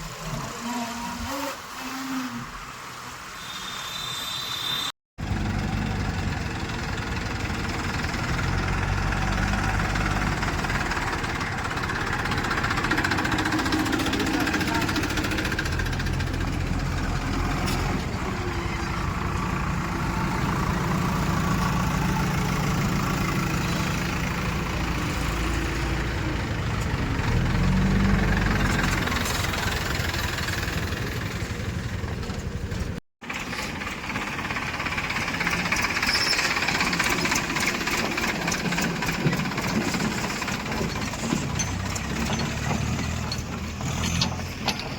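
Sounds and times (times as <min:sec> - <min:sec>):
heavy diesel engine revving: 0:05.2 - 0:44.9.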